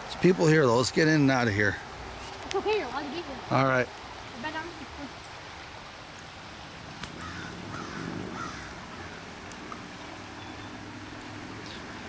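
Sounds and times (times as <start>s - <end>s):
creek rushing: 0.0s - 12.0s
bird calling: 7.2s - 10.9s.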